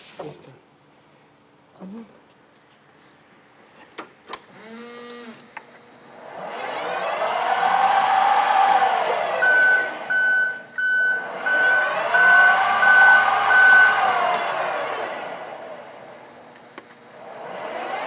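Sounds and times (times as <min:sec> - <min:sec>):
electric motor whining: 0:04.5 - 0:05.5, 0:06.1 - 0:18.0
reversing alarm beeping: 0:09.4 - 0:14.5.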